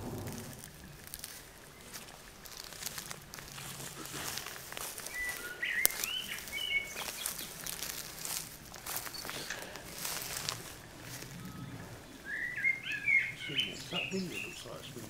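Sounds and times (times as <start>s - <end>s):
clicks and rustles: 0.0s - 12.0s
songbird whistling: 5.0s - 7.8s, 8.9s - 10.5s, 11.2s - 14.8s.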